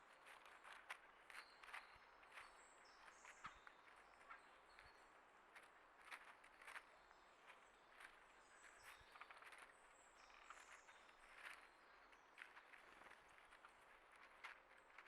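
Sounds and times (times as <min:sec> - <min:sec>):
soft taps and scratches: 0:00.0 - 0:15.0.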